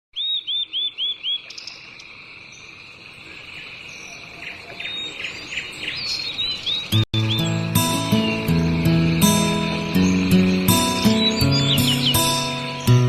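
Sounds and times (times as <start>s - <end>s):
birds chirping: 0.1s - 13.0s
high insect trill: 7.2s - 13.0s.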